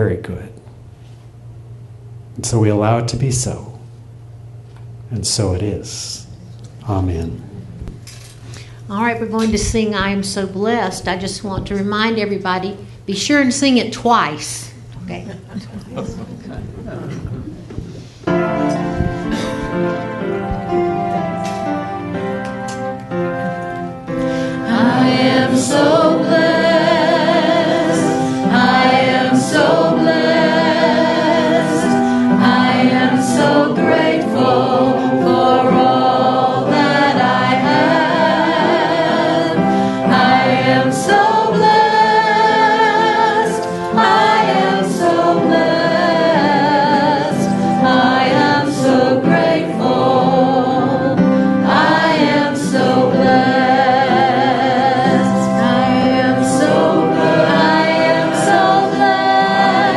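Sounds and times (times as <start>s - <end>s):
musical accompaniment: 17.3s - 59.9s
congregation and choir singing: 17.8s - 59.9s.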